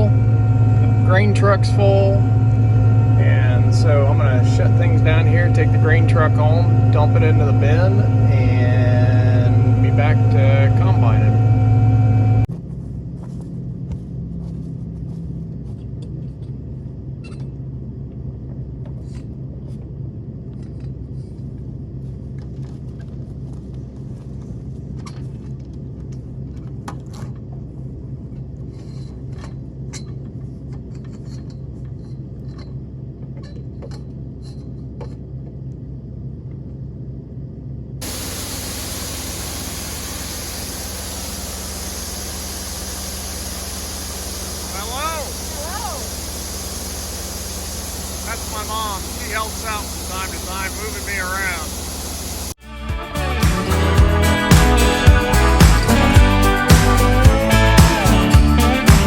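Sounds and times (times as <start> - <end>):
rushing vehicle noise: 0.0 - 16.0, 38.0 - 52.6, 53.4 - 59.0
vehicle engine humming: 0.0 - 26.8, 32.2 - 59.0.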